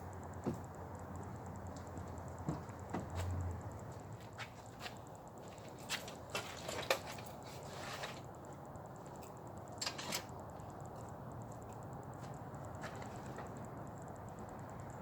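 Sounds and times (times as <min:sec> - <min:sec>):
steady low hum: 0:00.0 - 0:15.0
clicks and knocks of gear: 0:04.4 - 0:08.4.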